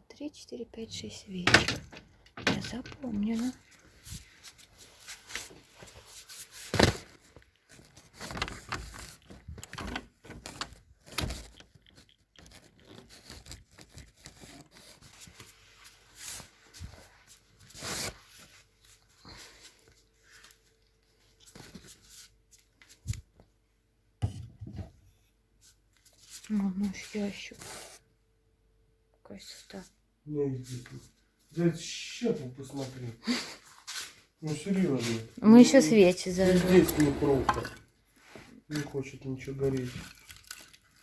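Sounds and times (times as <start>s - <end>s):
objects knocking and scraping: 1.4s - 3.6s, 24.2s - 25.0s, 36.4s - 37.9s.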